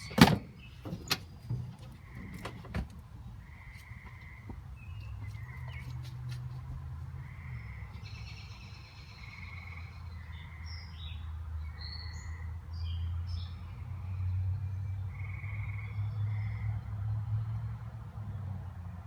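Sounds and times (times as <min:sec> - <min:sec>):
birds chirping: 0:00.0 - 0:06.6, 0:07.2 - 0:11.3.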